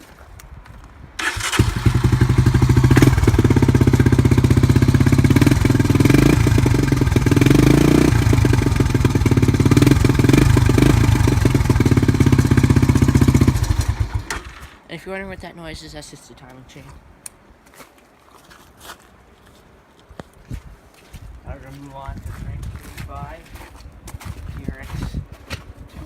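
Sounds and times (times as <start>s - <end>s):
four-stroke engine starting and running: 1.2s - 14.8s.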